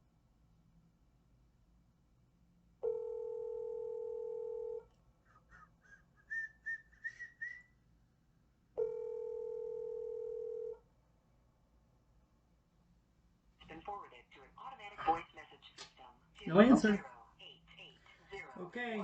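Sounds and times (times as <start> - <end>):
telephone ringback tone: 2.8 - 4.8, 8.8 - 10.8.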